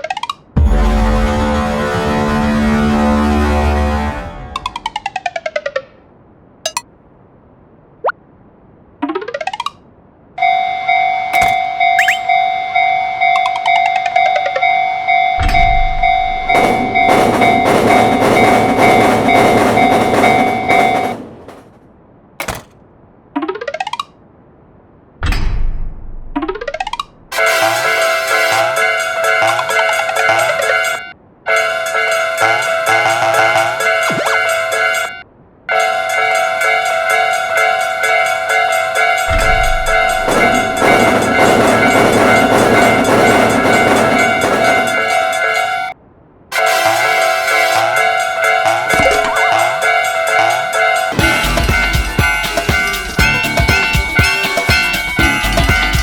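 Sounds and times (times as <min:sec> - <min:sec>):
railroad crossing alarm ringing: 0:10.4 - 0:21.2, 0:27.4 - 0:46.0, 0:46.6 - 0:56.0
rising cartoon glide: 0:12.0 - 0:12.3
train clattering past: 0:15.4 - 0:21.9, 0:35.8 - 0:46.0, 0:46.7 - 0:56.0.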